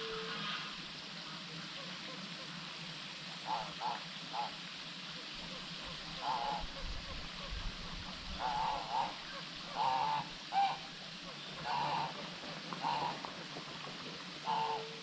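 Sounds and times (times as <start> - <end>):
bird calling: 8.4 - 13.2, 14.4 - 15.0.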